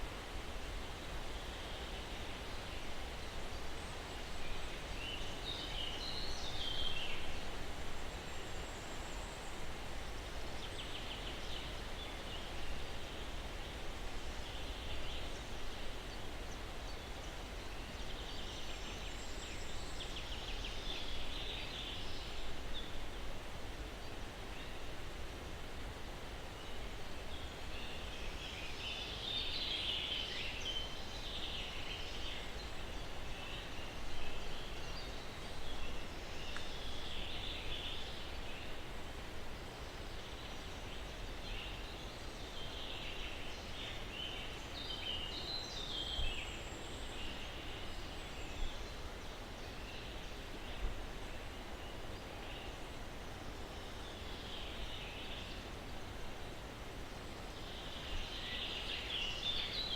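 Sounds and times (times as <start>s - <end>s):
breeze through pine trees: 0.0s - 59.9s.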